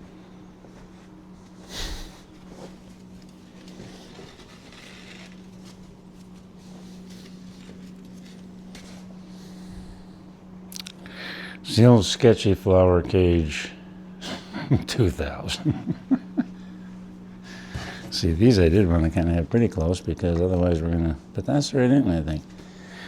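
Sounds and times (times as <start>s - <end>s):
faint rustling and handling: 0.0s - 10.4s
steady low hum: 0.0s - 23.0s.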